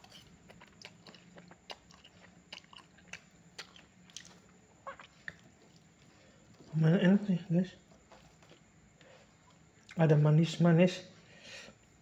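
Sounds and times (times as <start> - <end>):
person chewing noodles: 0.0 - 6.8, 7.8 - 10.0.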